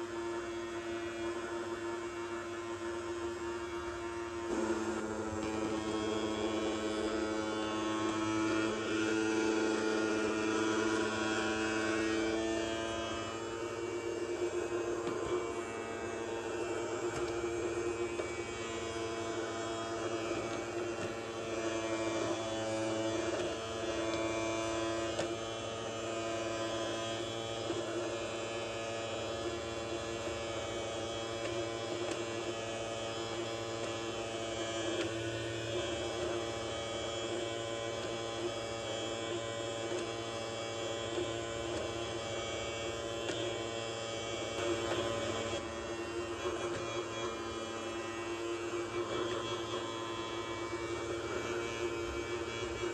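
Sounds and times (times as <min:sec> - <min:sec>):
toy robot vacuum motor humming: 0:04.5 - 0:52.9.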